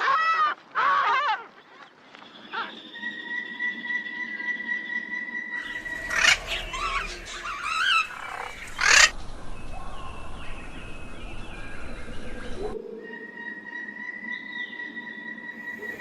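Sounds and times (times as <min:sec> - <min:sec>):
loud sharp bird calls: 0:05.6 - 0:09.2.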